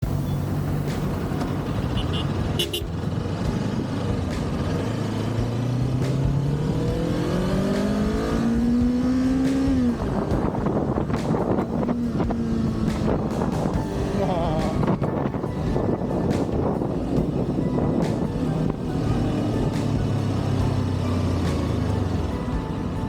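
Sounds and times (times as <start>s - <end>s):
motorcycle engine revving: 0.0s - 23.0s
wind on microphone: 8.1s - 21.0s.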